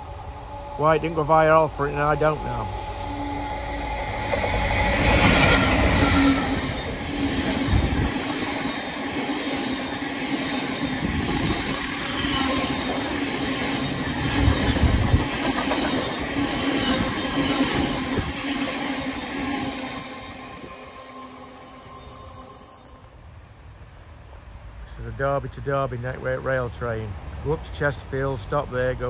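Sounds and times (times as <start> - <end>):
train wheels on rails: 0.0 - 23.2
diesel train engine: 0.0 - 23.3.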